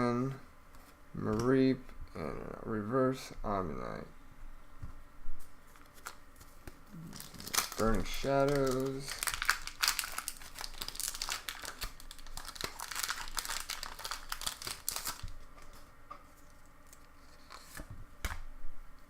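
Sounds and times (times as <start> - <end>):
foil wrapper crinkling: 5.7 - 15.8.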